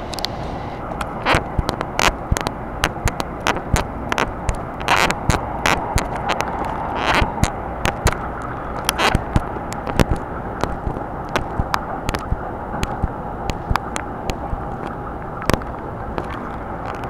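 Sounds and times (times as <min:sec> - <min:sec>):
faint train whine: 0:00.0 - 0:04.8
train rumble on rails: 0:00.0 - 0:17.0
sharp clicks: 0:00.1 - 0:17.0.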